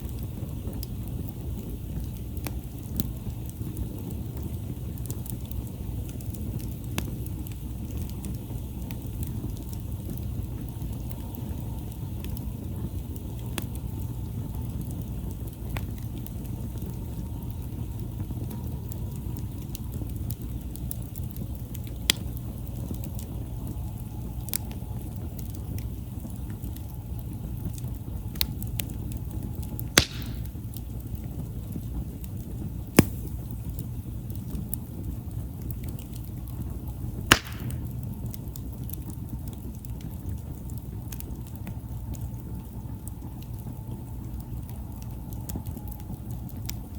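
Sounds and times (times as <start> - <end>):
campfire burning: 0.0 - 46.9
wood popping and cracking: 29.8 - 30.8, 32.8 - 33.8, 37.2 - 39.6.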